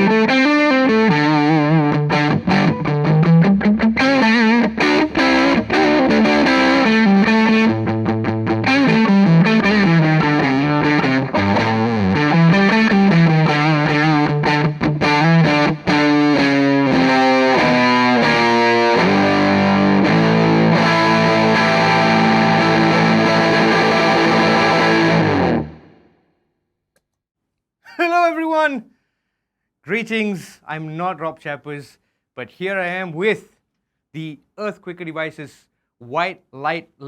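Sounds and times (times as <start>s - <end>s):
overdriven electric guitar: 0.0s - 26.2s.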